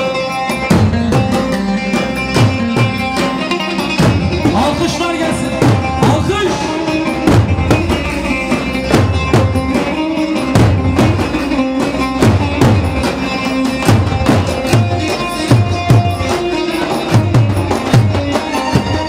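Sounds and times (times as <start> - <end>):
band playing dance music: 0.0 - 19.0
drum beat: 0.0 - 19.0.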